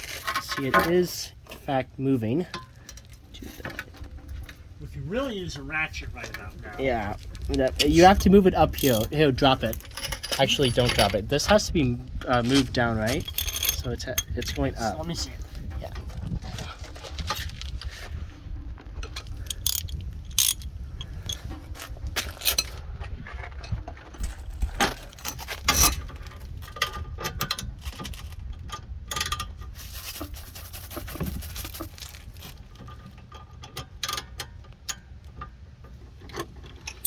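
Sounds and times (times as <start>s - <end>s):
socket ratchet clicking: 19.4s - 21.5s.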